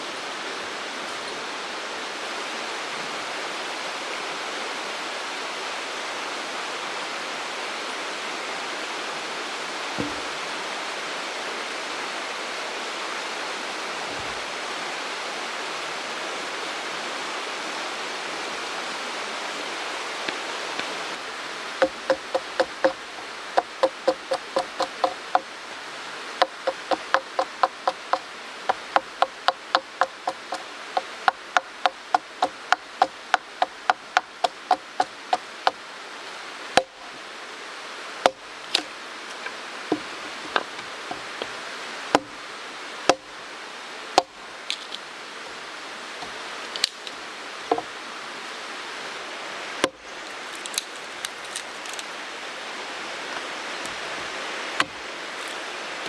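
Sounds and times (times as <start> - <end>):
stream rushing: 0.0 - 56.0
chopping on wood: 10.0 - 10.3, 21.8 - 23.0, 23.6 - 25.5, 26.4 - 28.2.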